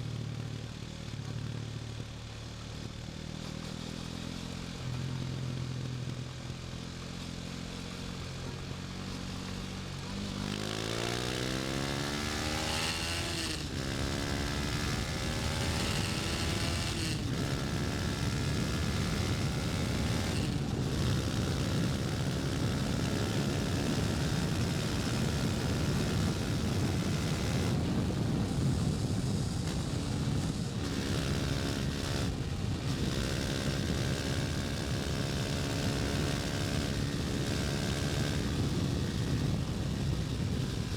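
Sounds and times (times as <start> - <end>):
motorcycle engine accelerating: 0.0 - 40.9
wind rushing over microphone: 10.1 - 40.9.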